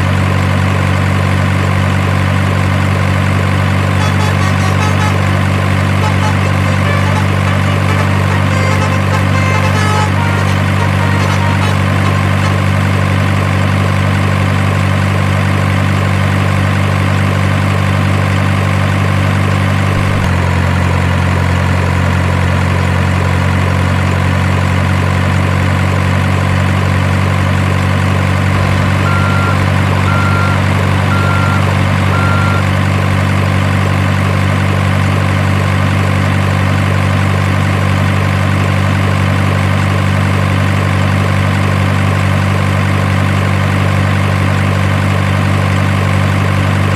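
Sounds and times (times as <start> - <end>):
truck engine idling drone: 0.0 - 46.9
short faint beeps: 29.0 - 32.7.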